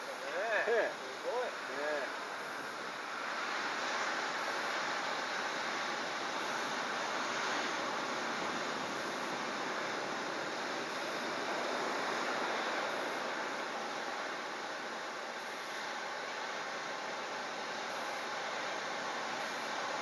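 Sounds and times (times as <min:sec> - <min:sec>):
strong wind: 0:00.0 - 0:20.0
surf: 0:00.0 - 0:20.0.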